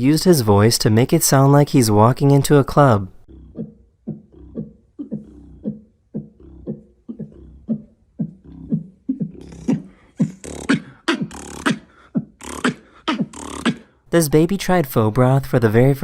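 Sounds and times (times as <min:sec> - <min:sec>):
beatboxing club beat: 0:03.3 - 0:14.0.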